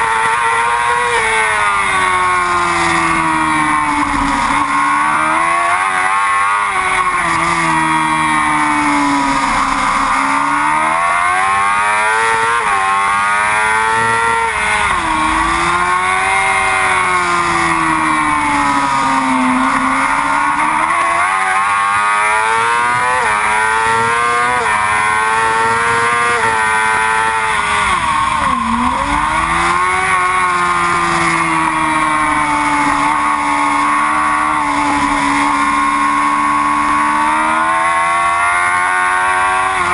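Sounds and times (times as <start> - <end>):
sport bike engine revving: 0.0 - 39.9.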